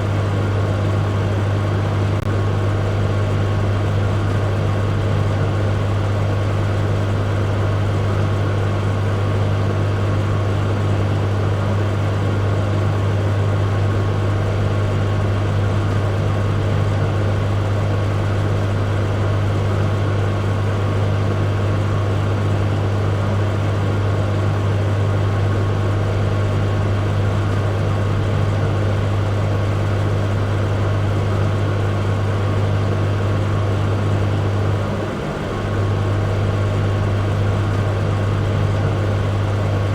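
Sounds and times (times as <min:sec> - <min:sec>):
microwave oven hum and whir: 0:00.0 - 0:39.9.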